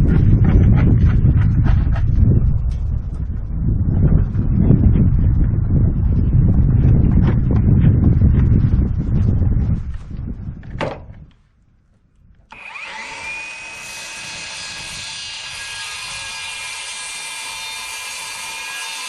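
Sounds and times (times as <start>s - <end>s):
electric power tool motor: 12.5s - 19.0s.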